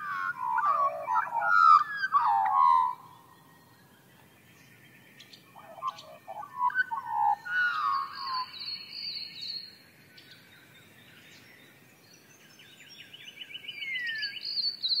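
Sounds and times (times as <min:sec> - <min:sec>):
bird trilling: 0:00.0 - 0:03.4, 0:05.5 - 0:09.1
birds warbling whistled phrases: 0:00.0 - 0:03.7, 0:05.4 - 0:09.7.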